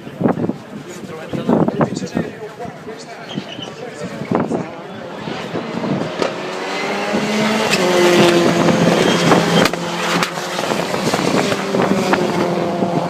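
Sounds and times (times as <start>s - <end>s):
racing car engines at high revs: 4.0s - 13.0s.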